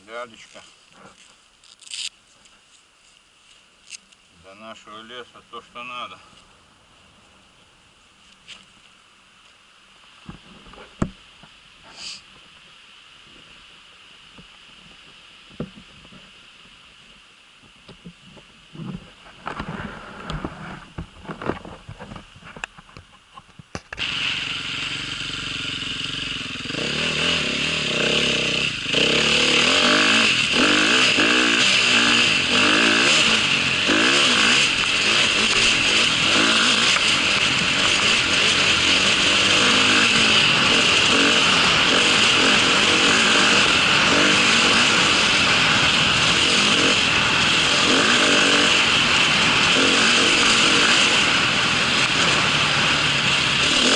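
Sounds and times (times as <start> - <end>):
motorcycle engine running: 23.9 - 53.9.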